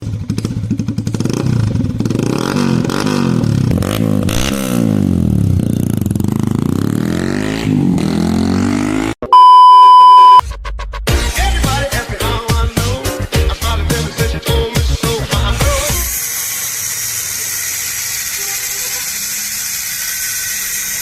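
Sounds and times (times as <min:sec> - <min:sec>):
motorcycle engine revving: 0:00.0 - 0:09.2
electronic beep: 0:09.3 - 0:10.4.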